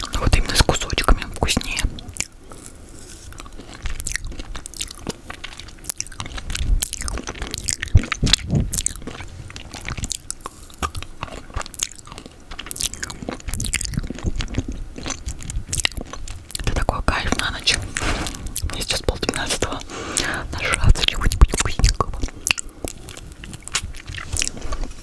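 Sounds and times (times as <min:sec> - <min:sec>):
tongue and lip clicks: 0:03.4 - 0:17.4, 0:20.2 - 0:24.6.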